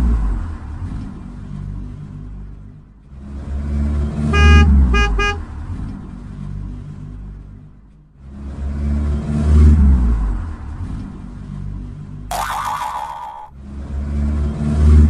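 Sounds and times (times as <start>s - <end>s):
car horn honking: 4.3s - 5.4s.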